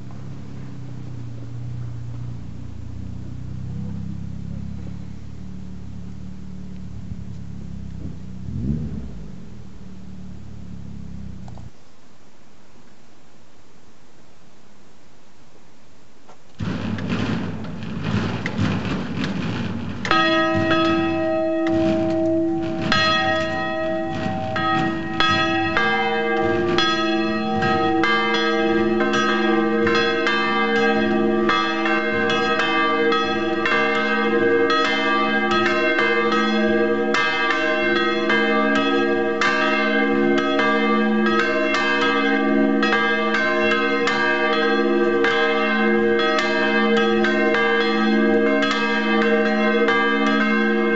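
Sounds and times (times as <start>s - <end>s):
church bells pealing: 0.0s - 11.5s, 20.0s - 50.9s.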